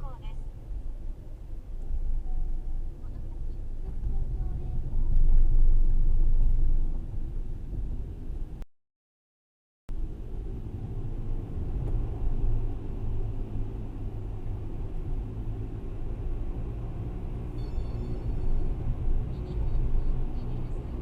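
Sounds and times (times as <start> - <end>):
city road traffic rumble: 0.0 - 8.6, 9.9 - 21.0
faint high-pitched squeal: 17.5 - 20.9.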